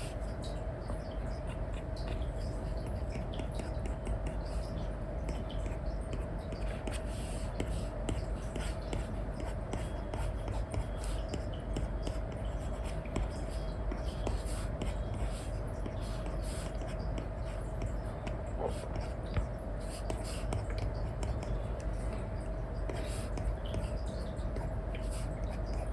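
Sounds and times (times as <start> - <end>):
faint steady hum: 0.0 - 25.9
stylus scratching and tapping on screen: 0.0 - 25.9.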